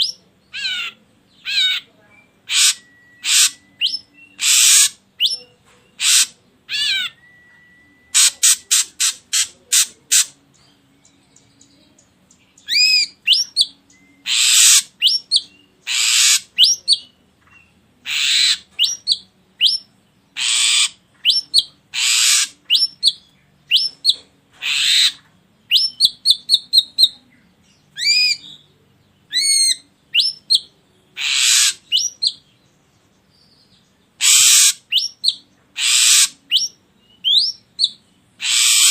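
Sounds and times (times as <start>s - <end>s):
bird song with rasping notes: 0.0s - 38.9s.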